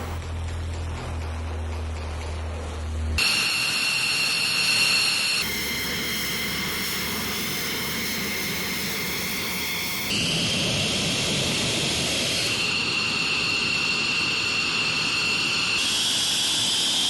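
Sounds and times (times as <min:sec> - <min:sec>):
jet engines whining: 0:00.0 - 0:00.2, 0:03.2 - 0:17.0
low hum: 0:00.0 - 0:03.5.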